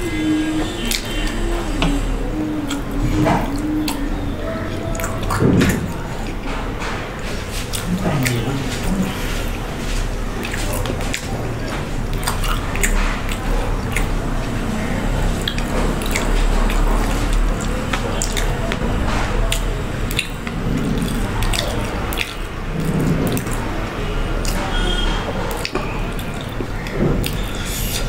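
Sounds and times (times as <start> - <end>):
chewing fried chicken: 0.0 - 28.0
wet mouth smacking: 10.4 - 14.6, 15.3 - 23.7.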